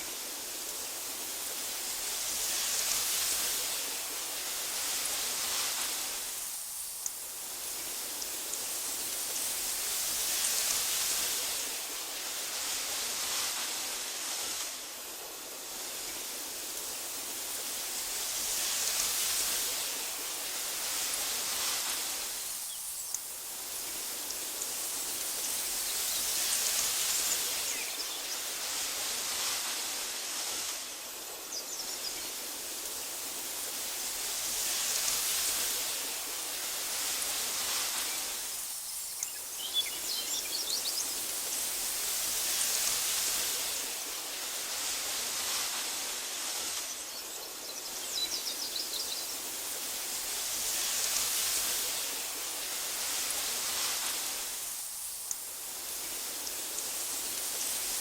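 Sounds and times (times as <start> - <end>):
wind through grass: 0.0 - 58.0.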